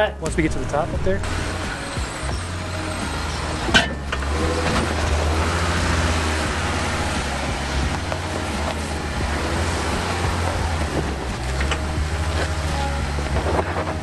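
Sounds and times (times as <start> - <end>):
off-road engine running low: 0.0 - 14.0.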